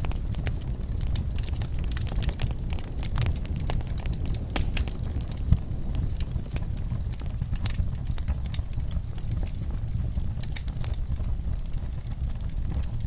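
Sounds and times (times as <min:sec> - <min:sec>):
wood fire crackling and popping: 0:00.0 - 0:07.8
low rumble of flames: 0:00.0 - 0:13.0.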